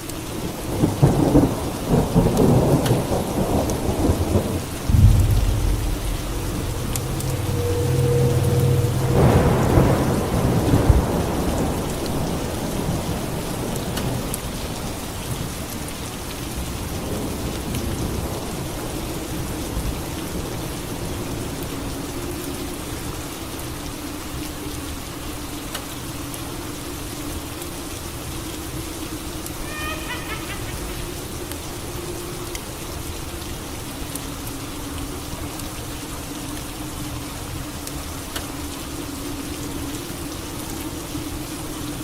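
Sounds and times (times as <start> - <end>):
heavy rain: 0.0 - 42.0
thunderclap with low rumble: 0.7 - 13.7.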